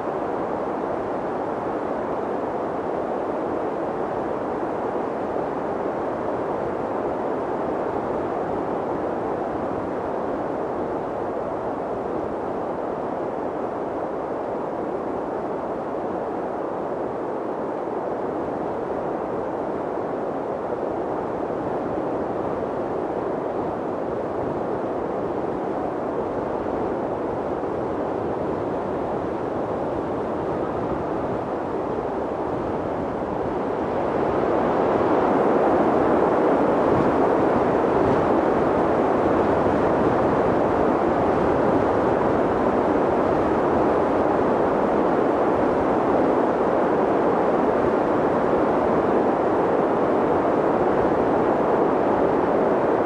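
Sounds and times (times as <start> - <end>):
wind blowing: 19.6 - 53.0.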